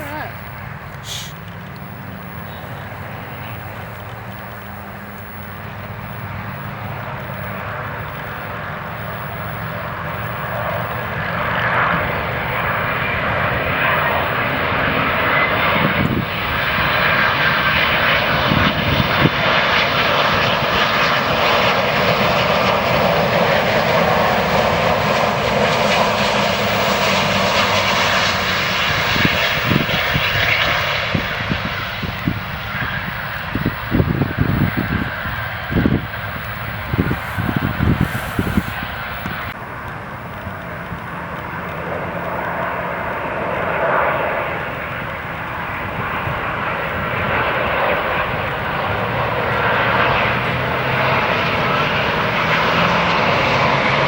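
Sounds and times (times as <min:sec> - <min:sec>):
jet airliner engines passing: 0:00.0 - 0:54.0.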